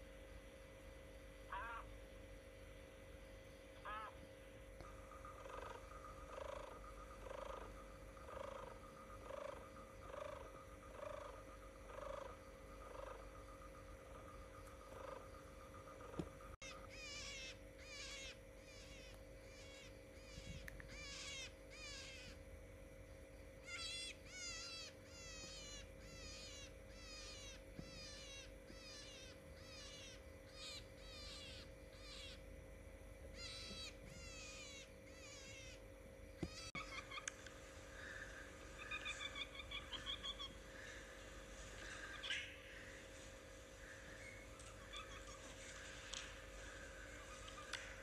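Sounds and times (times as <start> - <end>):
faint steady hum: 0.0 - 48.0
different bird call: 1.5 - 2.0, 3.8 - 4.2, 4.8 - 22.4, 23.6 - 32.4, 33.4 - 35.8, 36.4 - 48.0
bird chirping: 4.8 - 22.3, 33.4 - 35.8, 36.4 - 37.4, 38.0 - 48.0.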